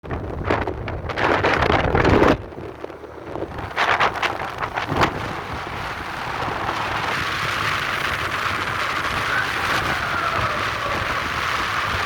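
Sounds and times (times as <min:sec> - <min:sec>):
low rumble: 0:00.0 - 0:12.0
wind buffeting microphone: 0:00.0 - 0:12.0.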